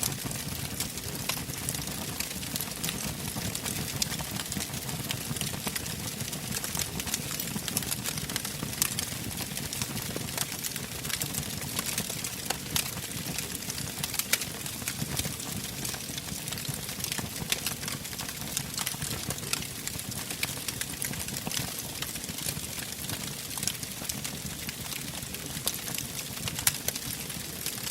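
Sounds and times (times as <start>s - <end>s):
burning logs crackling: 0.1s - 27.9s.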